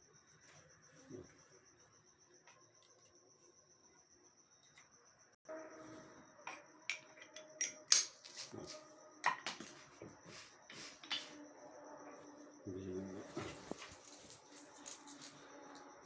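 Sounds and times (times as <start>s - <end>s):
cricket trill: 0.0s - 16.0s.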